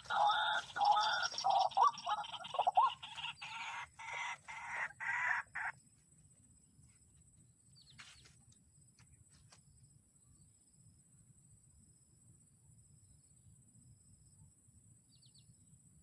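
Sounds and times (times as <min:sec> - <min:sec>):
bird croaking calls: 0:00.0 - 0:05.8.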